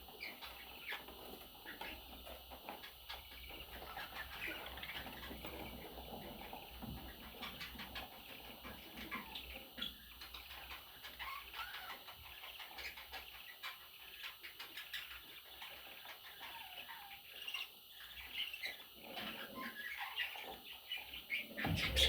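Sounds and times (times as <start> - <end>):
budgerigars chattering: 10.2 - 22.0.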